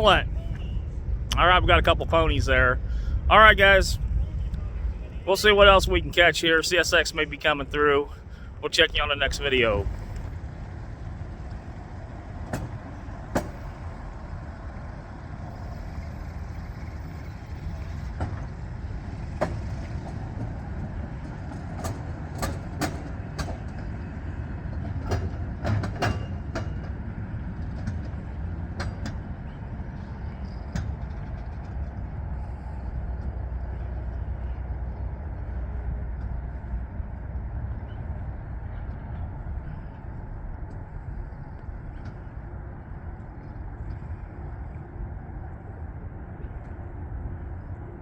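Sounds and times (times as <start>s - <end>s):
freight train rumbling past: 0.0s - 48.0s
sharp train clanks: 12.5s - 14.2s, 15.5s - 31.8s.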